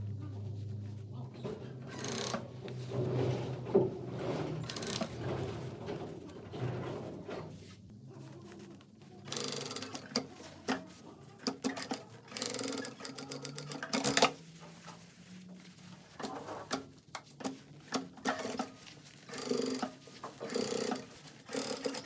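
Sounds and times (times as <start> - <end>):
sewing machine stitching: 1.9 - 7.4, 9.2 - 14.4, 16.2 - 22.0.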